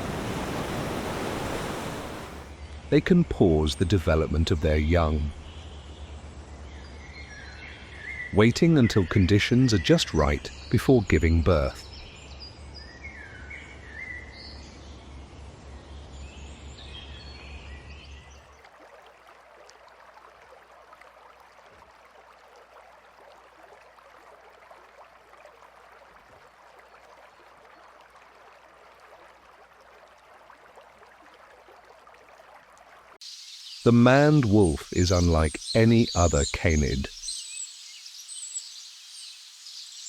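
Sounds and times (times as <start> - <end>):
hiss of insects or running water: 0.0 - 2.5, 33.2 - 40.0
bird chirps: 33.3 - 40.0.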